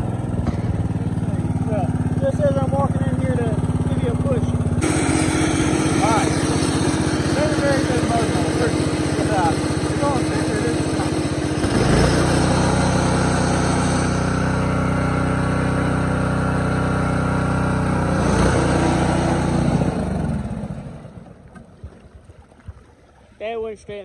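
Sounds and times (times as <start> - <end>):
riding mower engine running hard: 0.0 - 21.5
water splashing: 21.1 - 24.0.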